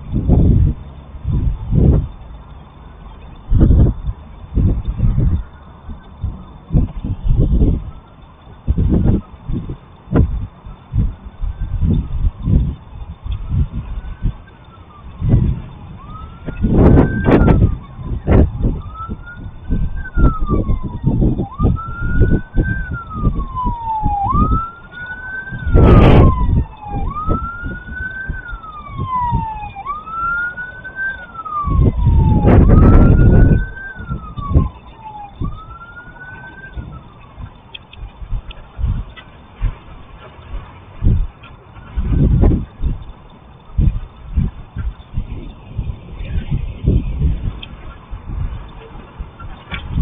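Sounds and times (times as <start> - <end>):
loud low rushes of noise: 0.0 - 50.0
siren wailing: 2.8 - 39.0.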